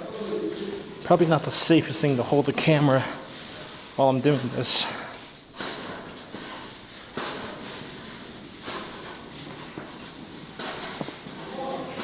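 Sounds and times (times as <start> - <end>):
footsteps on metal stairs: 4.1 - 12.0.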